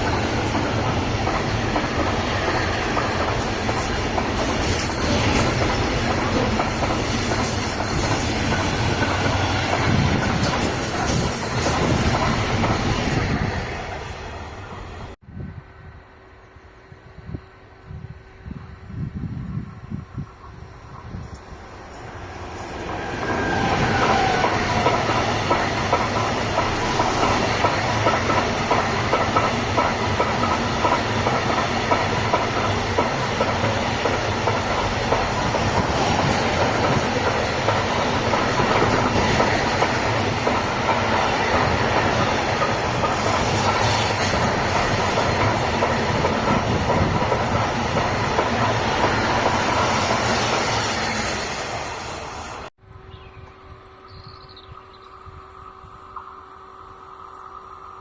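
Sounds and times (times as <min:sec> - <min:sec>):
clickety-clack over rail joints: 0:00.0 - 0:14.2, 0:20.9 - 0:50.6
train wheels rushing on rails: 0:00.0 - 0:15.2, 0:17.2 - 0:52.7.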